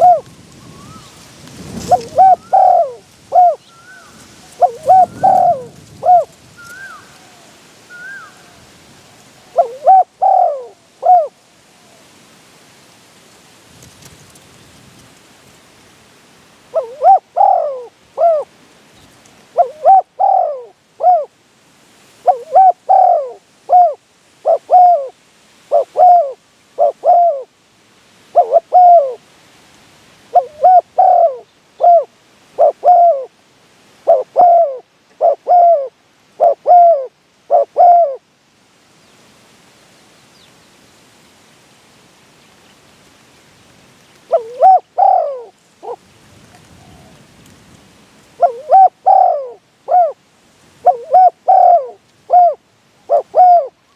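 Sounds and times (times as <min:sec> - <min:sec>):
doves cooing: 0:00.0 - 0:08.6, 0:09.4 - 0:12.1, 0:16.7 - 0:18.5, 0:19.5 - 0:21.3, 0:22.2 - 0:27.5, 0:28.3 - 0:29.2, 0:30.3 - 0:33.4, 0:34.0 - 0:38.2, 0:44.3 - 0:47.4, 0:48.4 - 0:50.2, 0:50.8 - 0:53.9.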